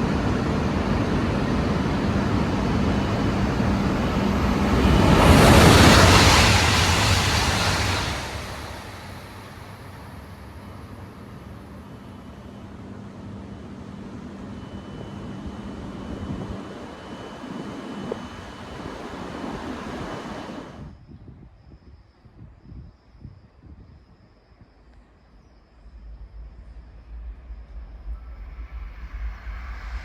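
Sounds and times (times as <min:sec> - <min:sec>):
train rushing roar: 0:00.0 - 0:20.9
faint insects chirping: 0:00.0 - 0:30.0.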